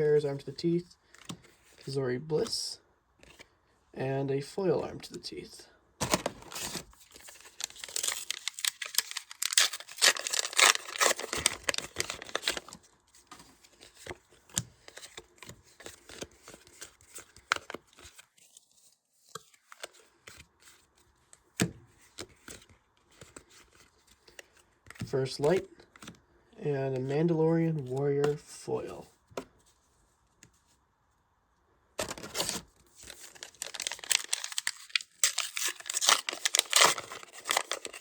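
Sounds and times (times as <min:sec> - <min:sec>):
foil wrapper tearing and crinkling: 0:06.1 - 0:12.8, 0:32.0 - 0:38.0.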